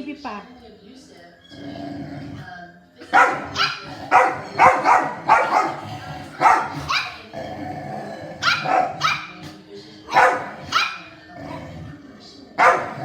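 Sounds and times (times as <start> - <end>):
dog growling: 1.4 - 13.0
dog barking: 3.0 - 7.3, 8.4 - 11.2, 12.6 - 13.0.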